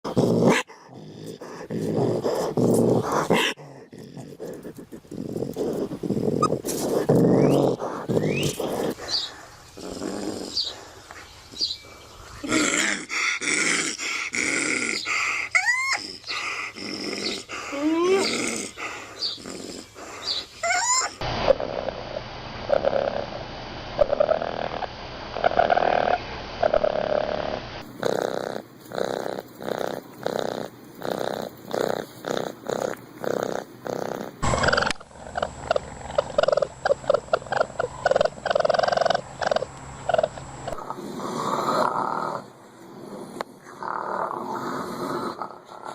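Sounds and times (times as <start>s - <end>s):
raccoons calling: 4.5s - 9.8s, 10.5s - 21.2s, 27.9s - 40.9s.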